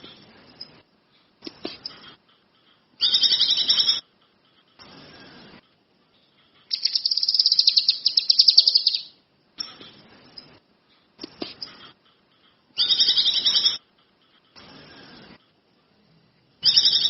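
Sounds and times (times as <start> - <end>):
songbird trilling: 3.0 - 4.0, 6.7 - 9.2, 12.8 - 13.8, 16.6 - 17.0.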